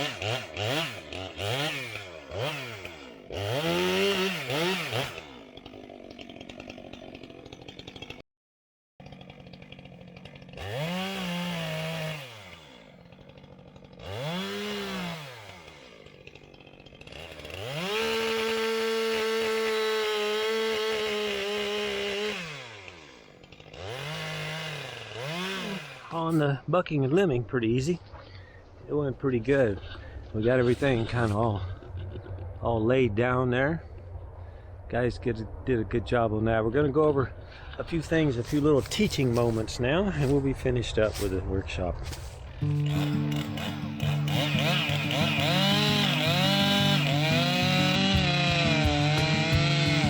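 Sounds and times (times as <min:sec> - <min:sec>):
chainsaw engine revving: 0:00.0 - 0:08.2, 0:09.0 - 0:26.5, 0:42.1 - 0:50.0.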